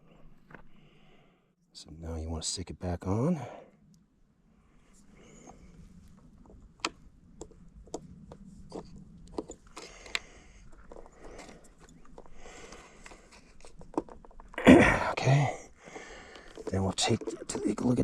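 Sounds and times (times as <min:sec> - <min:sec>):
fuses clicking and scraping: 0:05.0 - 0:14.6, 0:15.7 - 0:18.0.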